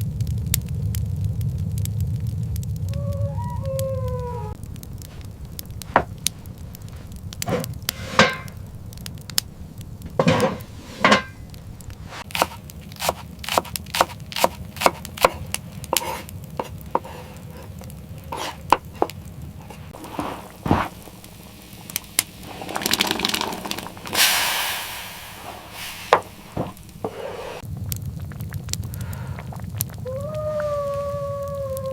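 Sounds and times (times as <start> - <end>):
brief rush of noise: 24.2 - 26.6.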